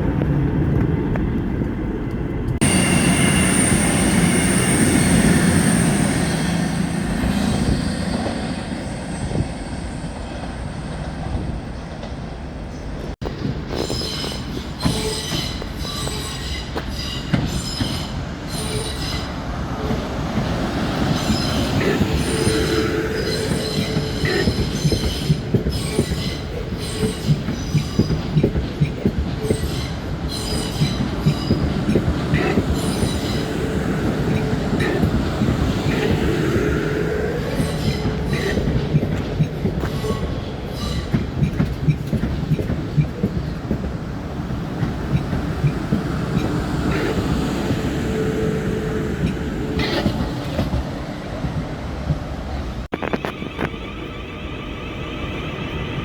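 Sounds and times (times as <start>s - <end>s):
high-pitched wheel squeal: 2.6s - 10.4s
train wheels clicking over rail joints: 13.0s - 48.1s, 49.0s - 53.3s.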